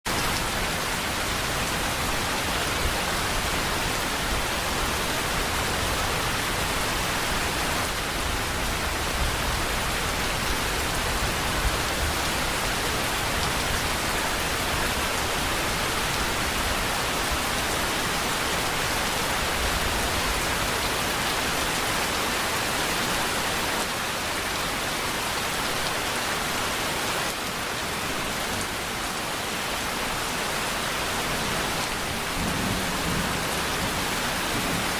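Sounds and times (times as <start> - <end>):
dense rainfall: 0.0 - 34.9.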